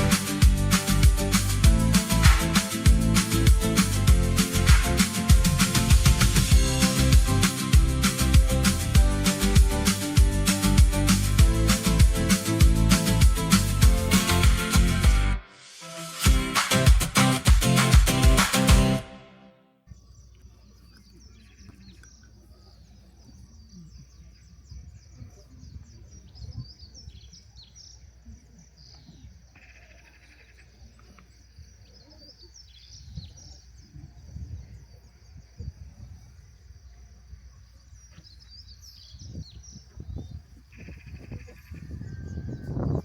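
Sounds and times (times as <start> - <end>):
small birds chirping: 19.9 - 43.0.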